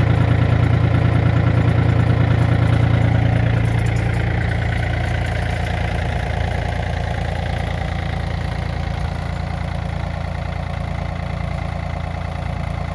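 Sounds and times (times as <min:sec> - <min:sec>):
diesel tractor engine idling: 0:00.0 - 0:12.9.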